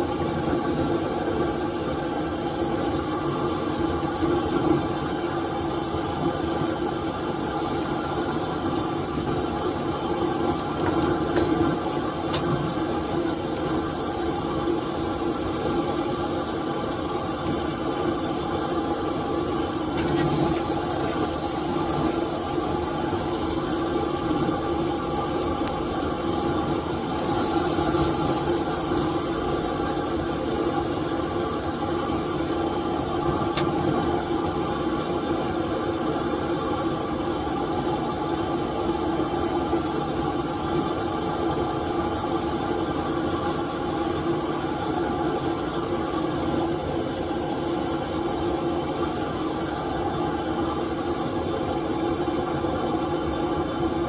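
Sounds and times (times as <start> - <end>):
mechanical hum with low drone: 0.0 - 54.0.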